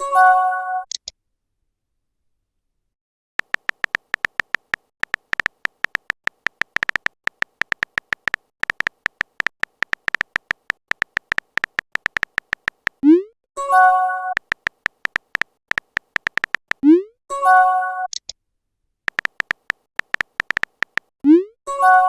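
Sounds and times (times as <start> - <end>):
phone keyboard tapping clicks: 3.4 - 13.0, 14.4 - 16.8, 19.1 - 21.1.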